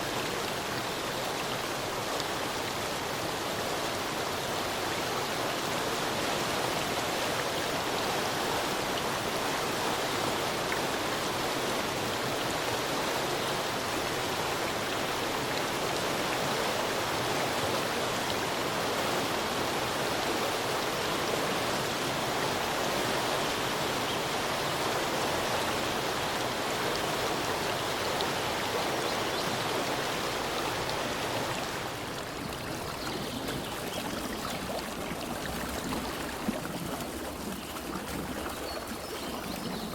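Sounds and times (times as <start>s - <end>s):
stream rushing: 0.0s - 39.9s.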